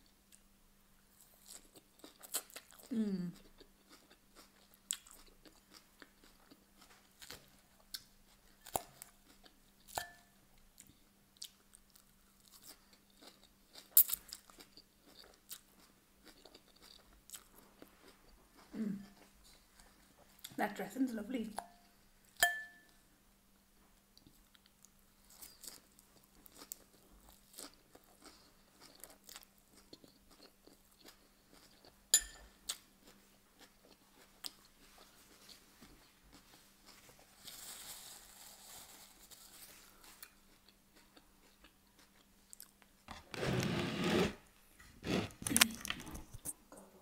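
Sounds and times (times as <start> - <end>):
faint steady hum: 0.0 - 43.8
chewing and crunching salad leaves: 1.2 - 10.2, 10.8 - 20.6, 24.2 - 32.0, 32.6 - 42.8.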